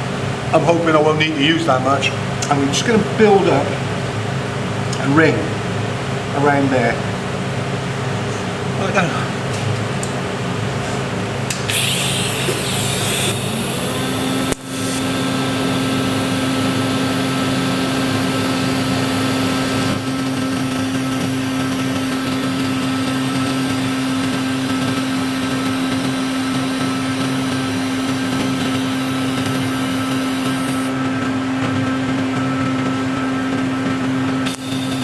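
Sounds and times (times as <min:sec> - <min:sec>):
welding arc humming: 0:09.5 - 0:31.0, 0:34.4 - 0:35.0.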